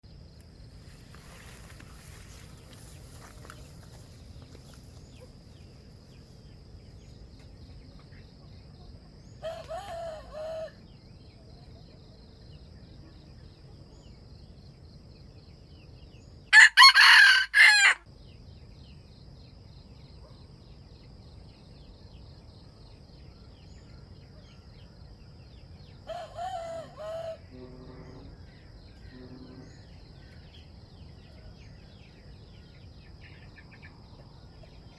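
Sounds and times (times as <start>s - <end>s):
high insect hum: 0.0s - 34.9s
roosters crowing: 9.4s - 10.8s, 16.5s - 18.0s, 26.0s - 28.3s.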